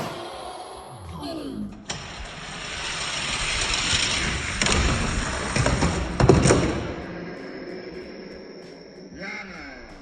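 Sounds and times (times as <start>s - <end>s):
toy cars rolling on track: 1.9s - 6.8s.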